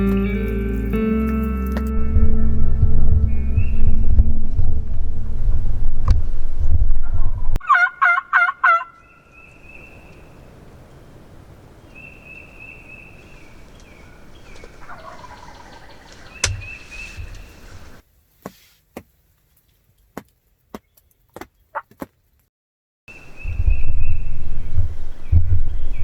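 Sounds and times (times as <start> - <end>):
faint turkey gobble: 7.6 - 9.0, 14.3 - 17.8
small bird chirping: 11.9 - 18.0.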